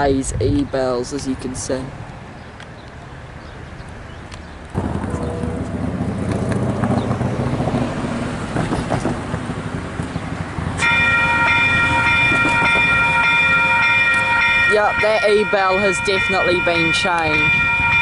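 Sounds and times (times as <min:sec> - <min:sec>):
rumbling background noise: 0:00.0 - 0:18.0
level-crossing bells ringing: 0:10.8 - 0:18.0.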